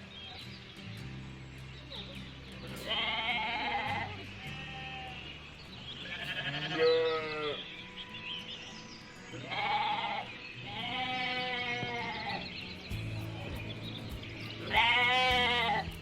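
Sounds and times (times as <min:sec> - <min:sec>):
sheep or goats bleating: 0:02.8 - 0:05.4, 0:06.0 - 0:07.8, 0:09.3 - 0:12.6, 0:13.3 - 0:16.0.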